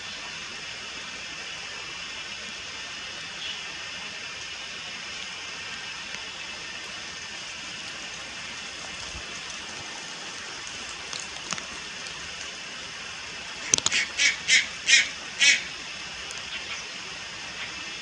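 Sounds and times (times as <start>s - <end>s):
steady high hiss: 0.0s - 18.0s
heron harsh calls: 13.6s - 15.8s.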